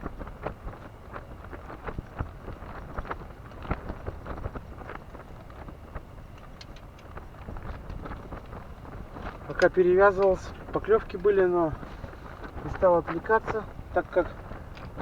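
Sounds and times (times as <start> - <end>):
wind rumbling on microphone: 0.0 - 15.0
small clicks and knocks: 6.3 - 8.6, 14.6 - 15.0.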